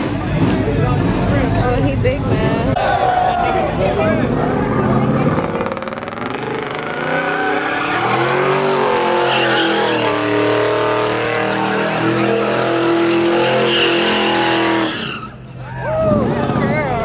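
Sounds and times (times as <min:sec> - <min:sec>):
tires squealing: 0:02.8 - 0:17.0
engine at high revs: 0:03.8 - 0:15.0.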